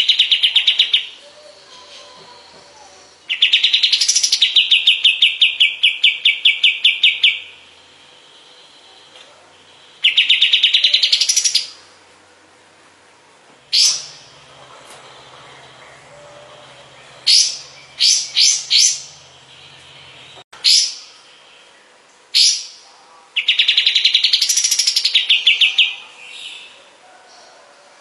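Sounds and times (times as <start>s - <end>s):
songbird singing a fast trill: 2.9s - 7.7s, 9.7s - 11.8s, 16.4s - 21.7s.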